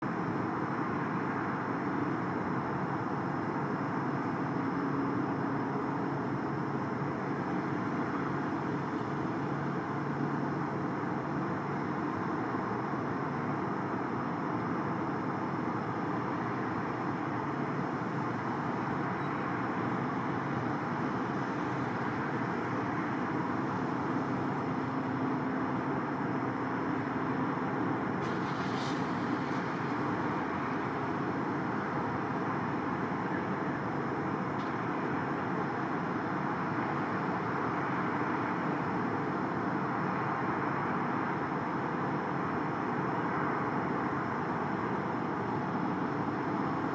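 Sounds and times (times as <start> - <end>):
backhoe engine running: 0.0 - 46.9
road traffic: 0.0 - 46.9
short hiss: 28.2 - 29.8.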